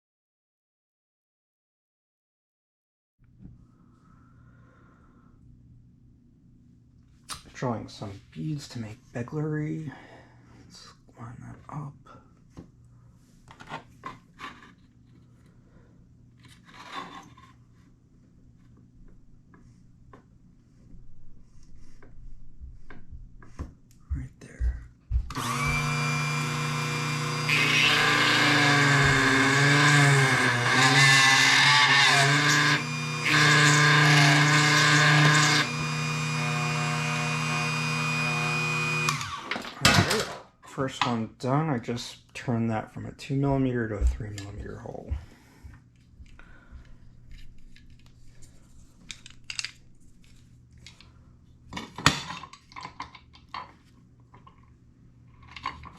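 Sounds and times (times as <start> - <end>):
tool scraping: 16.4 - 17.9, 25.1 - 40.2
electric drill running: 25.3 - 39.7.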